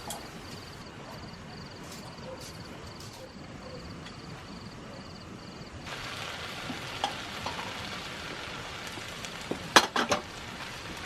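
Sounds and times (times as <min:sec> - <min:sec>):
food sizzling in a pan: 0:05.8 - 0:11.0.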